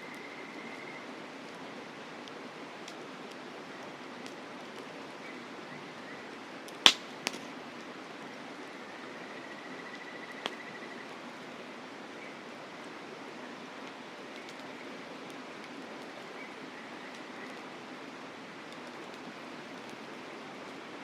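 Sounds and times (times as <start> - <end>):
campfire crackling: 0.0 - 21.0
river water flowing: 0.0 - 21.0
fire popping: 2.2 - 5.0, 6.6 - 7.9, 18.6 - 20.8.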